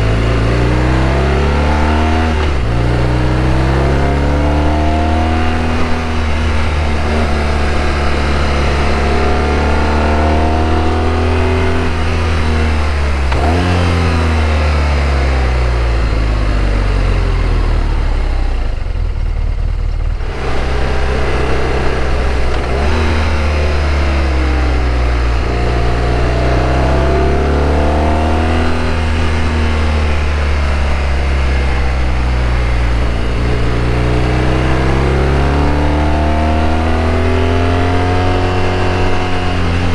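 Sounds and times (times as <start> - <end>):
motorcycle engine revving: 0.0 - 39.9
road noise: 0.0 - 39.9
wind noise: 28.2 - 39.9.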